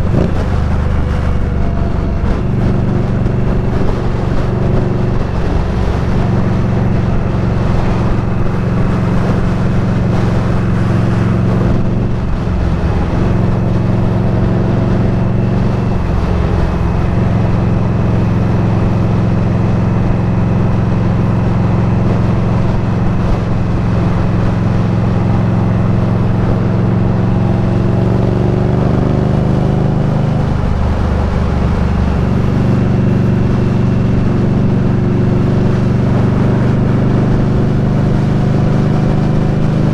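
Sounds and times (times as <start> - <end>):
motorcycle engine running: 0.0 - 39.9
rush of wind noise: 0.0 - 39.9.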